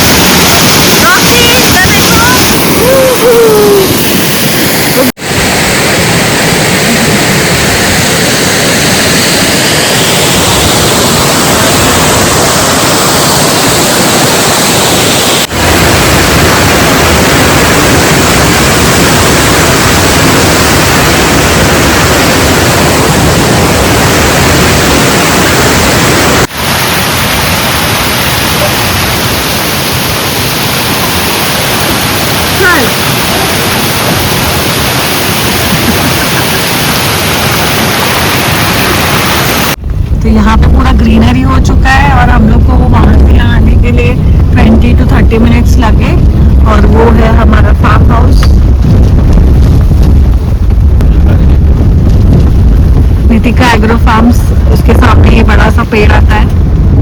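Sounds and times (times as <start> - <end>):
waterfall rushing: 0.0 - 39.8.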